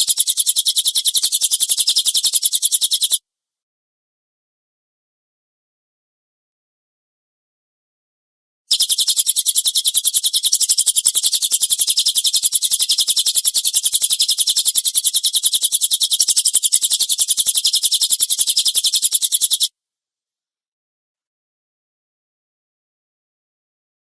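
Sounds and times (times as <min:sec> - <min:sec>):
bird harsh rapid chattering: 0:00.0 - 0:03.2, 0:08.7 - 0:19.7.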